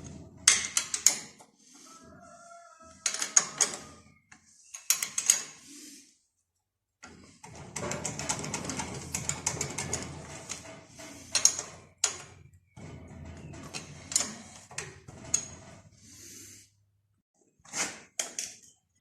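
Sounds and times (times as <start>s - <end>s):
metal tools clinking and clattering: 8.0s - 15.9s.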